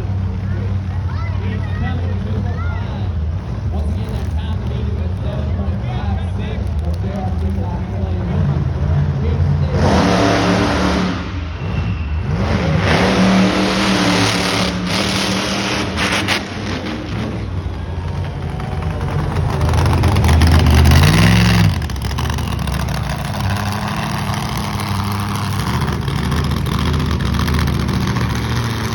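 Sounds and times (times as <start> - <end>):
truck engine revving: 8.1 - 28.9.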